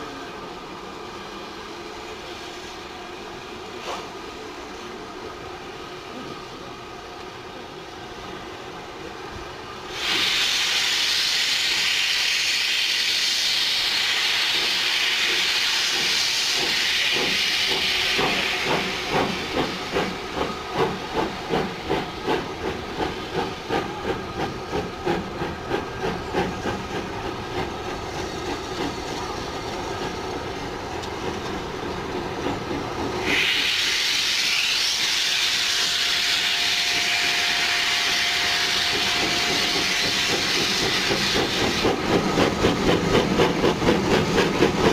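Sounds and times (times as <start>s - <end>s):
steam hissing: 9.8s - 44.9s
steam locomotive exhaust beats: 9.8s - 44.9s.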